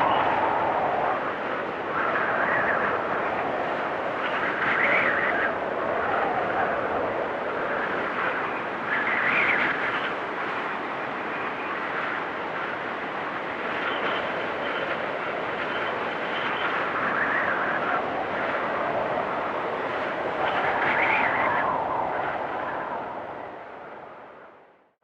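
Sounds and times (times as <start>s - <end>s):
faint high wind whistle: 0.0s - 24.9s
storm wind gusting: 0.0s - 24.9s.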